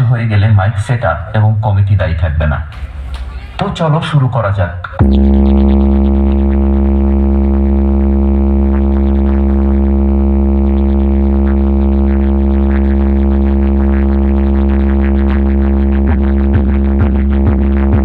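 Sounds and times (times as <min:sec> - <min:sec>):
deep electronic bass drone: 0:04.8 - 0:18.0.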